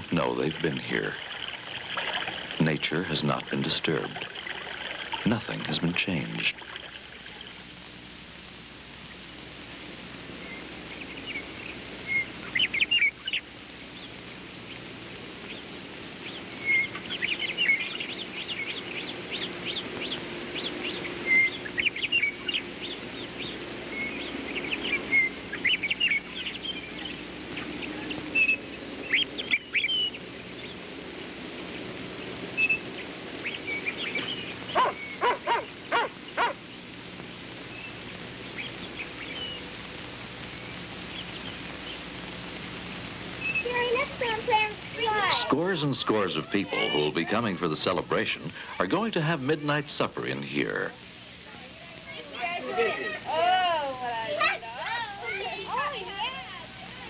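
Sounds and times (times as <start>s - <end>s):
steady background hiss: 0.0s - 57.0s
birds chirping and singing: 10.4s - 37.0s, 37.7s - 39.7s, 40.4s - 42.1s, 43.4s - 48.0s.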